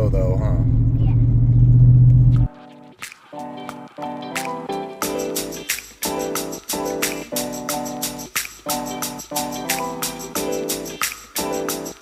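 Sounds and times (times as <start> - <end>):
background music with steady beat: 2.4 - 12.0.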